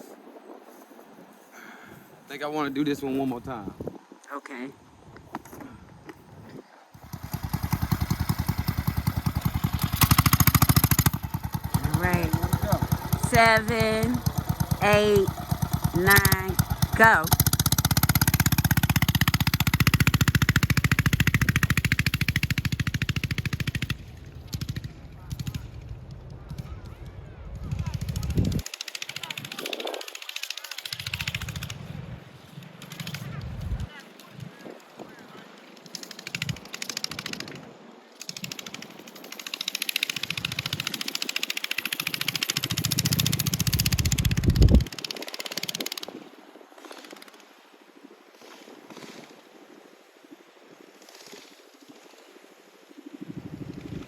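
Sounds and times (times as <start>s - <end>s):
mini bike engine chugging: 7.0s - 32.0s, 35.9s - 37.6s, 38.2s - 46.2s, 53.4s - 54.0s.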